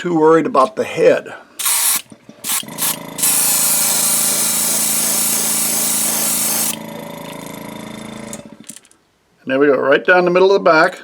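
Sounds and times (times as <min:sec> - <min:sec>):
airbrush spraying hiss: 0:01.6 - 0:06.8
small air compressor humming: 0:01.6 - 0:08.8.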